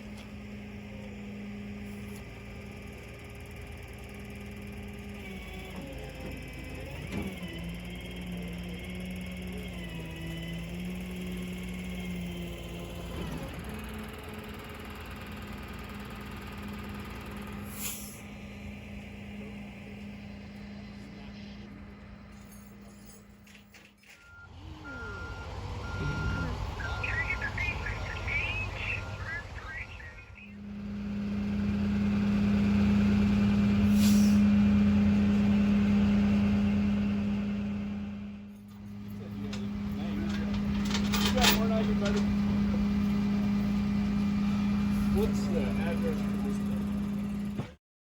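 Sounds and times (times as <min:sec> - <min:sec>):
vehicle engine running: 0:00.0 - 0:23.7, 0:24.3 - 0:47.8
vehicle engine idling: 0:24.3 - 0:47.7.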